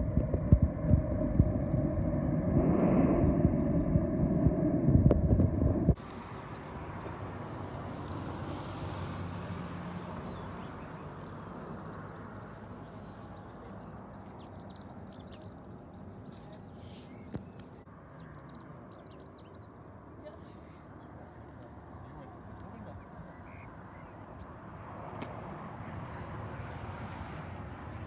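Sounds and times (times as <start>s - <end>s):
aircraft noise: 0.0s - 18.9s
birds chirping faintly: 6.0s - 26.2s.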